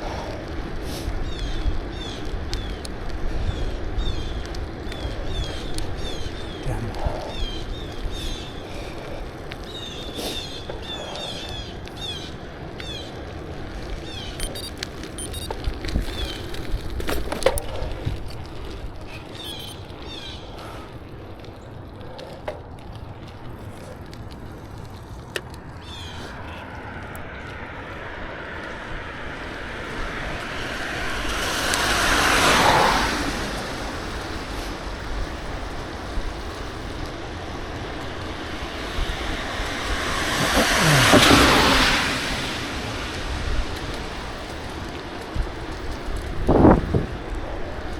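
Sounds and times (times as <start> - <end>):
birds chirping: 1.1 - 18.1, 19.0 - 22.4, 25.4 - 34.4
vehicle passing: 23.2 - 47.9
wind noise on microphone: 25.8 - 47.9.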